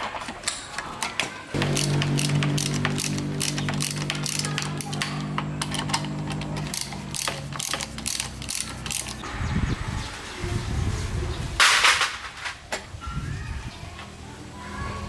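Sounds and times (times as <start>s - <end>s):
hand tools ratcheting on metal: 1.6s - 9.2s
steady hum: 1.6s - 9.2s.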